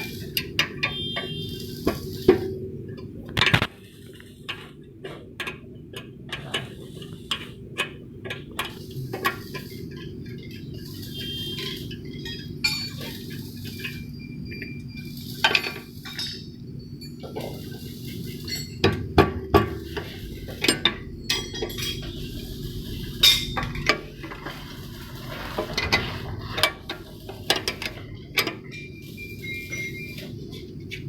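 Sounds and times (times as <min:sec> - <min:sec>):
steady low hum: 0:06.6 - 0:31.0
metal tools clinking and knocking: 0:12.1 - 0:13.2, 0:18.3 - 0:19.1, 0:20.6 - 0:22.1.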